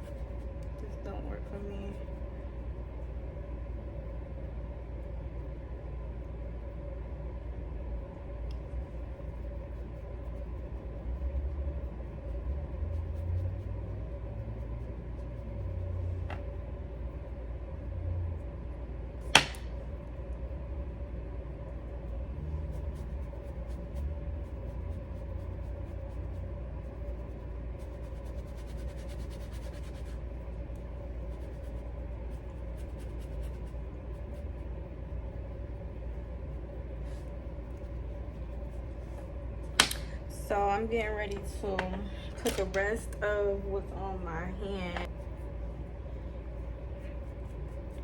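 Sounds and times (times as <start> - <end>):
low room hum: 0.0 - 48.0.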